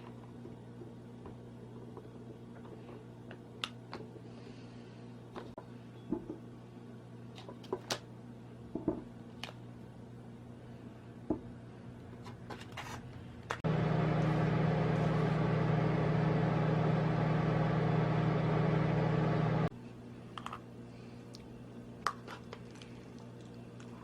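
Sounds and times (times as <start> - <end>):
kitchen appliance motor hum: 13.6 - 19.7.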